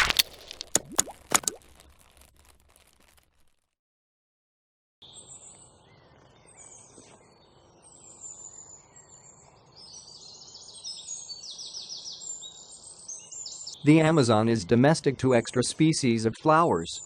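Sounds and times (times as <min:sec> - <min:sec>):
birds chirping and trilling: 0:05.0 - 0:14.9.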